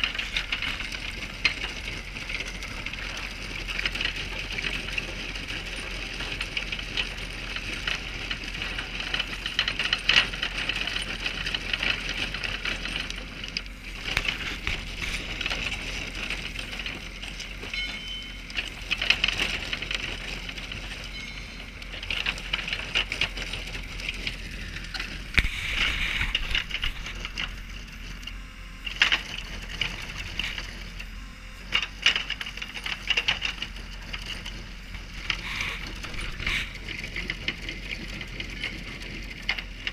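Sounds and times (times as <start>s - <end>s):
broken asphalt clattering: 0.0s - 28.2s
milling drum grinding asphalt: 0.0s - 39.9s.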